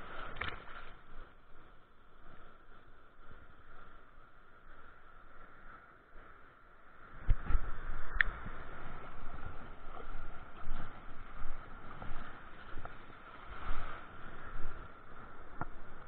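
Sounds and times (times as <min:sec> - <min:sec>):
wind rumbling on microphone: 0:00.0 - 0:16.0
light clicks: 0:00.2 - 0:01.0.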